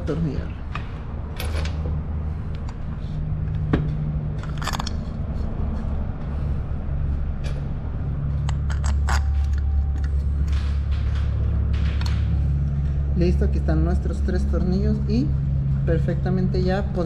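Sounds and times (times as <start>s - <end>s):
steady low hum: 0.0s - 17.0s
metal bolts clicking and clinking: 0.7s - 2.0s, 3.9s - 5.2s, 8.4s - 12.4s.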